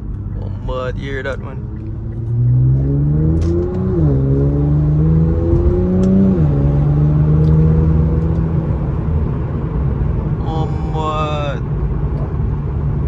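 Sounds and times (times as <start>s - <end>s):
car exhaust accelerating hard: 0.0s - 10.4s.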